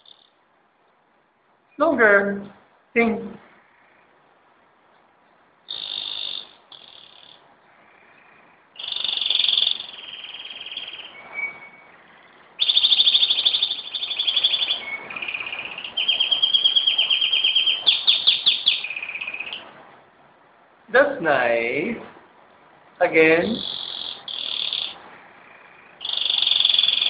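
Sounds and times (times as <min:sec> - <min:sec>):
canary singing: 0:00.0 - 0:00.4, 0:03.0 - 0:19.8, 0:23.0 - 0:27.0
fast canary trills: 0:00.0 - 0:00.4, 0:05.7 - 0:19.7, 0:23.4 - 0:27.0.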